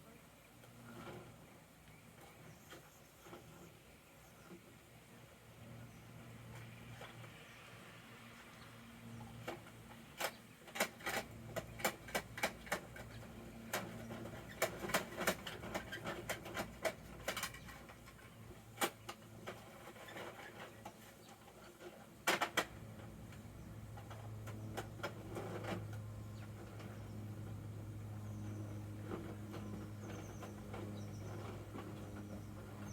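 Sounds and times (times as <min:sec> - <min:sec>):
plastic toy truck clicking: 0:09.4 - 0:18.2.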